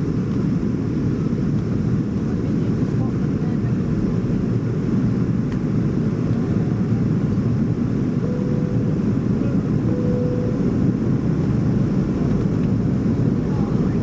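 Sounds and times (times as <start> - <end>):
airplane cabin rumble: 0.0 - 14.0
faint thin tone: 8.2 - 10.6.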